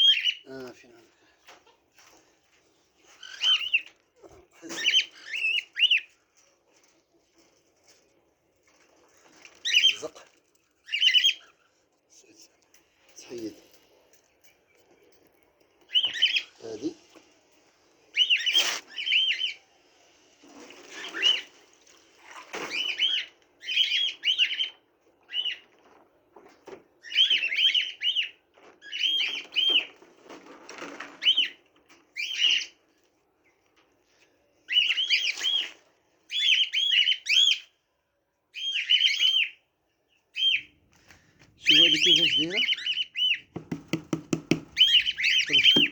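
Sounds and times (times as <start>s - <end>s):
small birds chirping: 0.0s - 2.2s, 2.8s - 6.9s, 10.8s - 19.6s, 38.6s - 45.9s.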